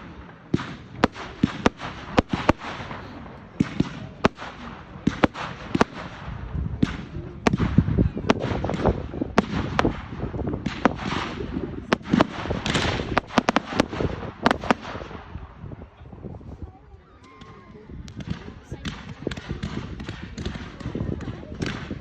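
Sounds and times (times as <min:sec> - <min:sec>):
fireworks bangs and cracks: 0:00.0 - 0:16.6, 0:17.4 - 0:22.0
fireworks crackling hiss: 0:00.0 - 0:16.8.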